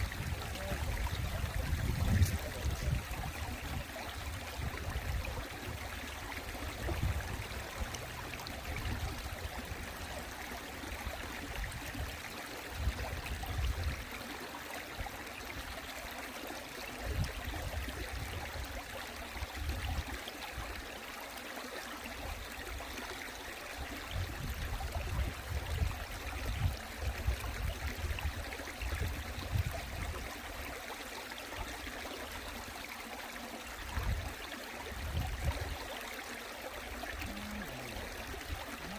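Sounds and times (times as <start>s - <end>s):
stream water flowing and splashing: 0.0s - 38.9s.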